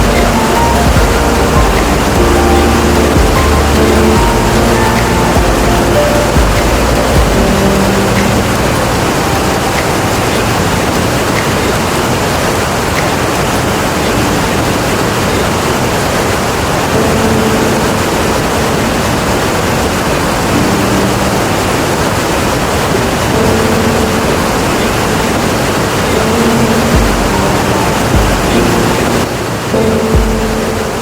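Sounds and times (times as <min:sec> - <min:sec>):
faint low tones: 0:00.0 - 0:12.2
waterfall rushing: 0:00.0 - 0:31.0.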